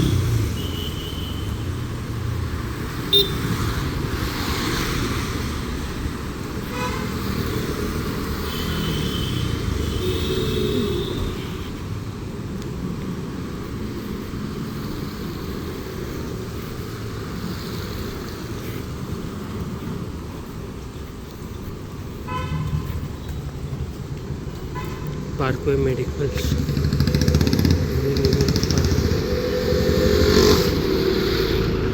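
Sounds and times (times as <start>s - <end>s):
road traffic passing: 0.0s - 31.9s
vehicle horn toot: 0.5s - 1.7s, 3.1s - 3.6s, 6.7s - 7.1s, 8.4s - 11.7s, 22.3s - 22.9s, 24.7s - 25.1s.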